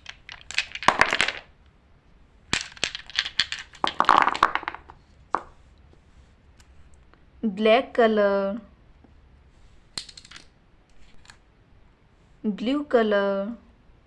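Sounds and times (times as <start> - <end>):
crinkling: 0.0 - 1.5, 2.5 - 7.1.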